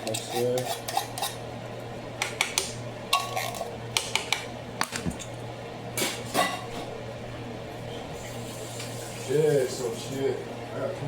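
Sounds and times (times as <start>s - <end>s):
dishes and utensils clinking: 3.1s - 3.7s.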